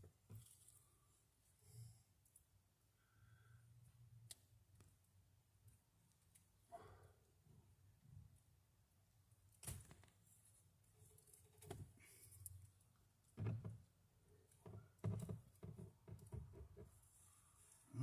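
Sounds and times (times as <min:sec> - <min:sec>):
faint knocks and clicks: 0:13.2 - 0:13.9, 0:14.5 - 0:17.1.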